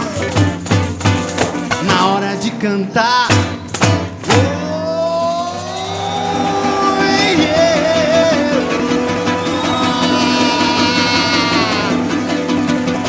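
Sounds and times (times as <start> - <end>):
tambourine jingles: 3.6 - 11.7.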